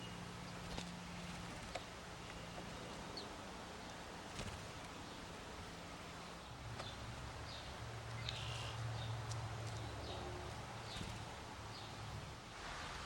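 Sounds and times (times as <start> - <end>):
birds chirping: 6.8 - 12.0.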